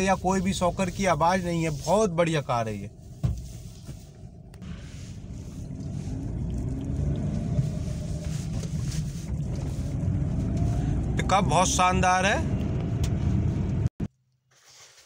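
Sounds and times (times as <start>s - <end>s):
road noise: 0.0s - 14.0s
car engine accelerating: 4.3s - 13.9s.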